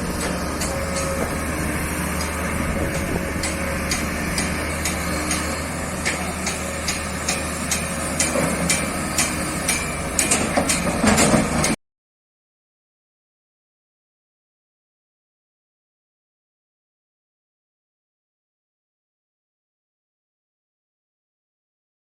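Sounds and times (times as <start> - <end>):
excavator diesel engine running: 0.0 - 11.8
machine clanks and knocks: 0.0 - 11.8.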